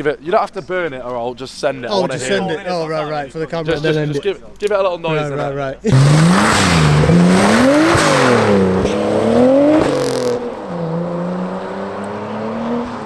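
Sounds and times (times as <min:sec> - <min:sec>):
steady engine note: 0:05.9 - 0:11.1
car engine revving: 0:05.9 - 0:13.0.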